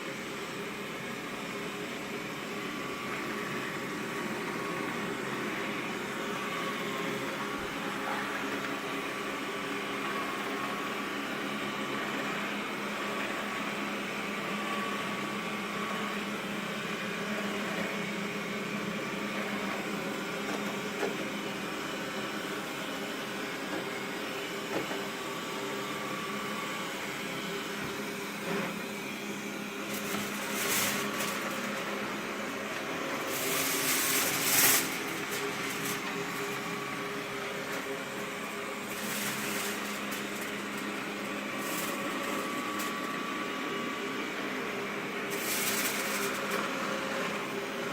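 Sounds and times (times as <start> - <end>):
robot vacuum motor whirring: 29.8 - 43.5, 45.2 - 47.4.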